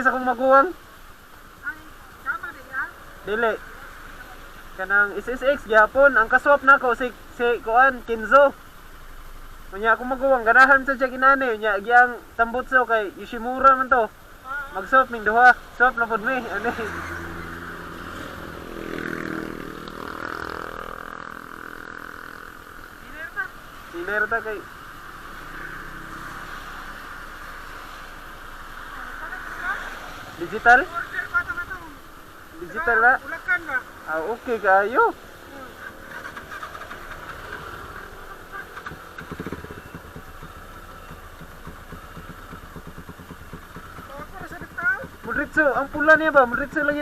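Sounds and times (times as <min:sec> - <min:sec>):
vehicle engine passing by: 0:15.5 - 0:42.8.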